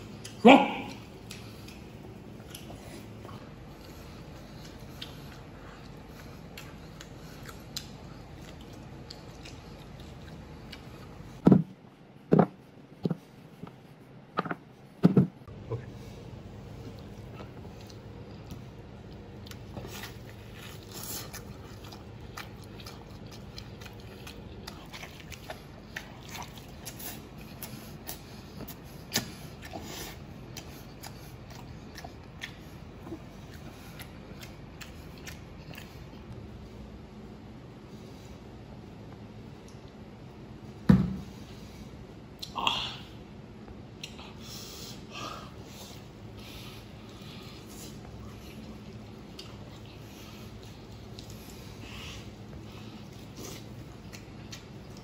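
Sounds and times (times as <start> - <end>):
man chewing and gnawing: 0.0 - 36.6, 45.5 - 55.0.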